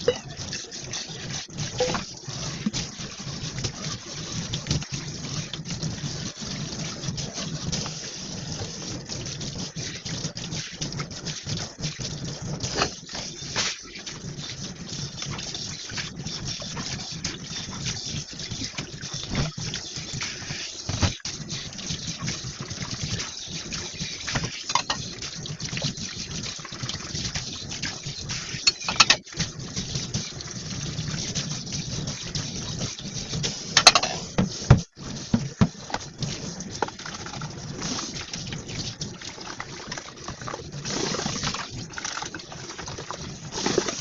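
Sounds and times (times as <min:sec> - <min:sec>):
dishes clinking: 0:00.0 - 0:00.4, 0:01.8 - 0:02.0, 0:24.7 - 0:25.0, 0:28.7 - 0:29.2, 0:33.8 - 0:34.3
tap water running into sink: 0:00.0 - 0:44.0.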